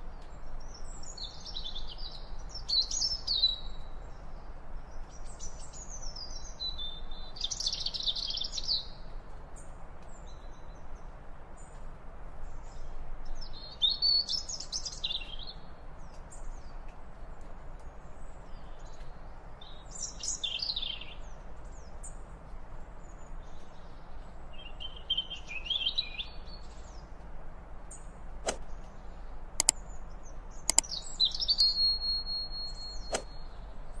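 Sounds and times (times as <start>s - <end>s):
songbird chirps and trills: 0.0s - 34.0s
sharp clicks: 29.6s - 29.8s, 30.7s - 31.0s.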